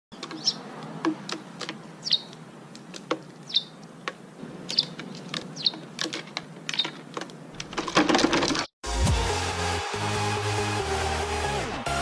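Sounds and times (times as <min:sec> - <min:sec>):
sparrows chirping: 0:00.1 - 0:07.5.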